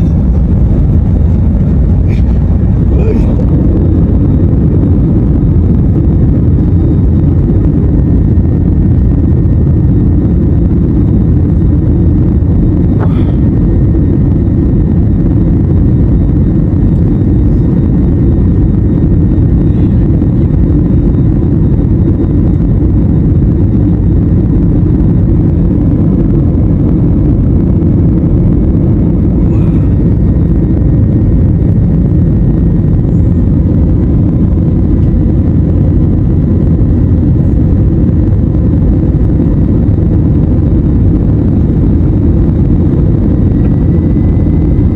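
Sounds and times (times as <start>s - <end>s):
airliner cabin engine rumble: 0.0s - 44.9s
faint high whine: 0.0s - 44.9s.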